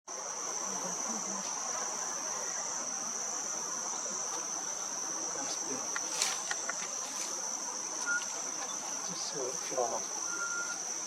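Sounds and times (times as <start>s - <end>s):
high-pitched insect drone: 0.1s - 11.0s.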